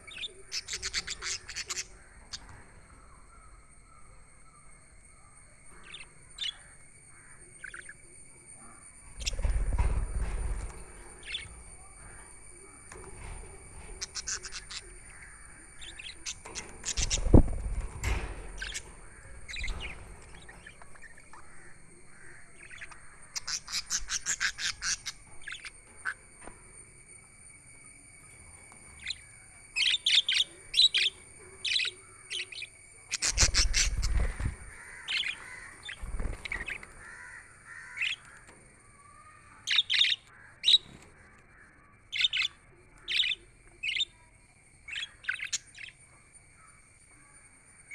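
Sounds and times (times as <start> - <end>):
budgerigars chirping: 0.0 - 3.6, 5.7 - 8.0, 9.1 - 26.2, 28.9 - 38.6, 39.6 - 41.1, 42.1 - 44.2, 44.9 - 46.0
dull thumps: 9.1 - 26.6.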